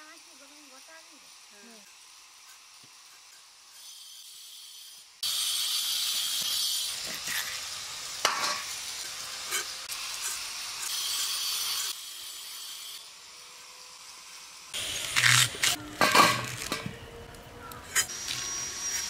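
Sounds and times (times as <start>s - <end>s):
food sizzling in hot oil: 5.2s - 11.9s.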